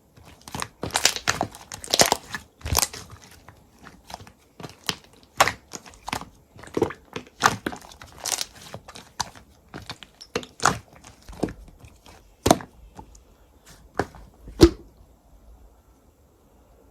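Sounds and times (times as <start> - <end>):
slime crackling and popping: 0.0 - 13.2.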